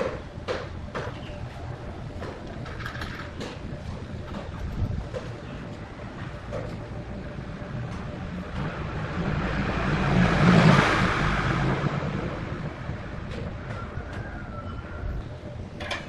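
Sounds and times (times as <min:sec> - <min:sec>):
vehicle passing by: 0:07.0 - 0:15.6.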